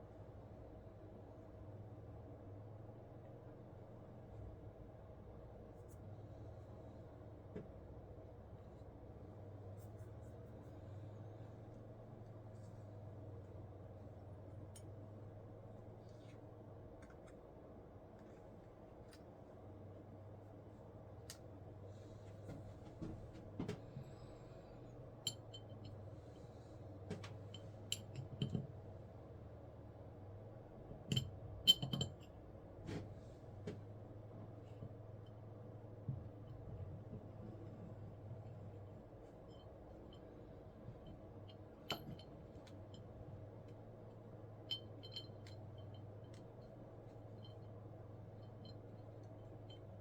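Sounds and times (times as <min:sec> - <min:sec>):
steady low hum: 0:00.0 - 0:50.0
small parts and tools clinking: 0:31.1 - 0:32.3, 0:44.7 - 0:47.8.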